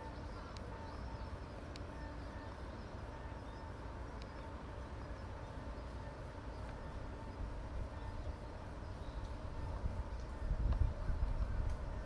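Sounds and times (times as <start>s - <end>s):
faint hum: 0.0s - 12.0s
light ticks: 0.4s - 1.1s, 1.7s - 1.9s, 4.1s - 4.5s, 9.2s - 9.4s, 10.1s - 11.9s.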